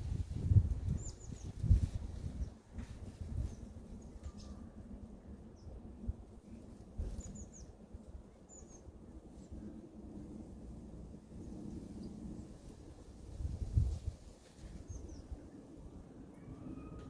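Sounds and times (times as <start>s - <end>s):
small birds chirping: 0.9s - 2.6s, 7.0s - 7.8s.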